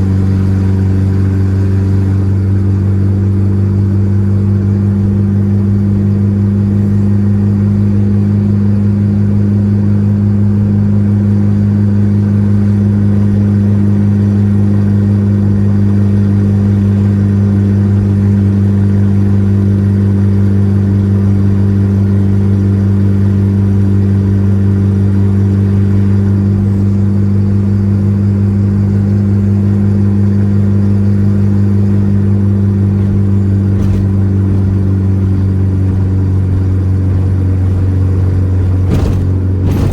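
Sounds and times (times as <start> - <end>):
car engine droning: 0.0 - 39.9.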